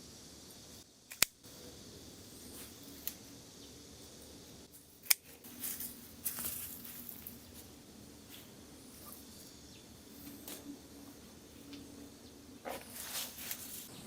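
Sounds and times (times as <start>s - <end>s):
pruning shears snipping stems: 1.1s - 1.4s, 2.5s - 3.3s, 4.8s - 7.7s, 12.6s - 14.0s
rustling of leaves and stems: 4.7s - 14.0s.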